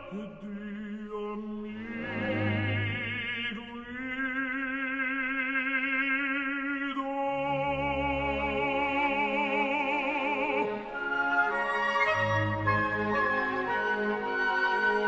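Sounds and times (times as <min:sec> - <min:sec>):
orchestra playing: 0:01.8 - 0:03.5, 0:08.0 - 0:15.0.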